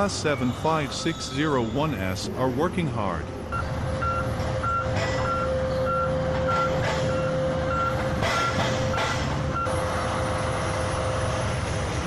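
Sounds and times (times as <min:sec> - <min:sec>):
reversing alarm beeping: 0:00.0 - 0:02.4, 0:03.5 - 0:10.0
constant whine: 0:00.0 - 0:12.0
truck engine drone: 0:00.0 - 0:12.0.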